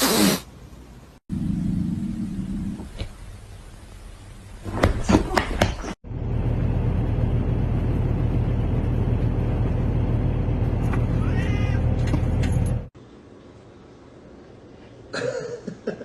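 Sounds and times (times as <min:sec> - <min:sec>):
steady low rumble: 0:06.0 - 0:12.9
cat meow: 0:11.1 - 0:11.8.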